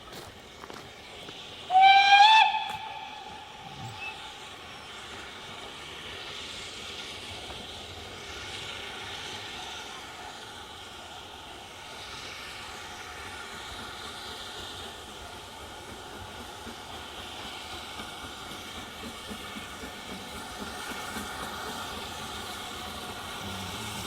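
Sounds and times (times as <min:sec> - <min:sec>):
train running by: 0:00.0 - 0:24.0
train whistle: 0:01.7 - 0:04.4.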